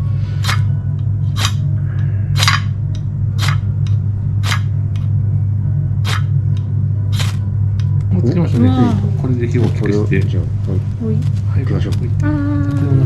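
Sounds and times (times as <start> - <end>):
low hum: 0.0 - 13.0
striker scraping fire-starter rod: 0.4 - 0.7, 1.3 - 1.6, 2.4 - 2.7, 3.4 - 3.6, 4.4 - 4.7, 6.0 - 6.3, 7.1 - 7.4.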